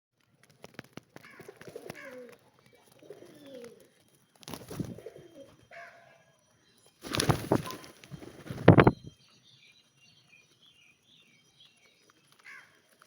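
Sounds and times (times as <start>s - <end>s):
birds calling: 1.2s - 13.0s
noisy rustle: 7.0s - 9.1s.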